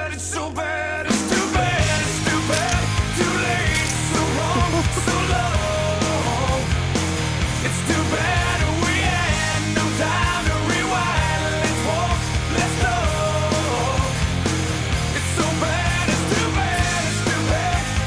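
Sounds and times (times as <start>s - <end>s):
rock music: 1.0s - 18.0s.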